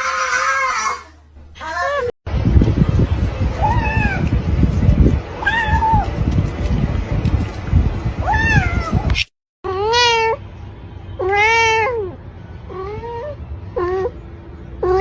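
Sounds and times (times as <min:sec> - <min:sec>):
cat meowing: 0:05.4 - 0:06.1, 0:09.7 - 0:10.4, 0:11.2 - 0:14.1.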